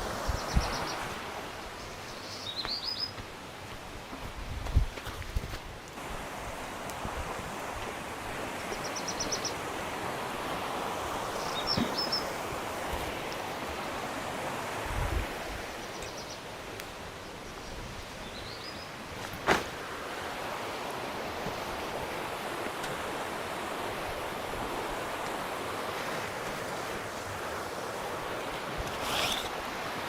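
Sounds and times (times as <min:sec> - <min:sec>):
steady rushing outdoor noise: 0:03.4 - 0:30.0.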